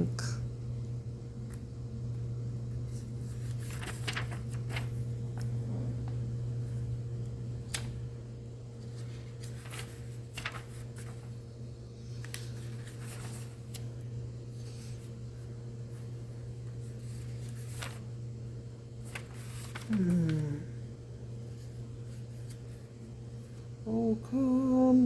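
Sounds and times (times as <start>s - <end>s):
steady low hum: 0.0s - 25.0s
paper pages rustling: 2.8s - 6.2s, 7.6s - 8.0s, 8.8s - 18.2s, 19.0s - 20.6s, 21.5s - 22.8s.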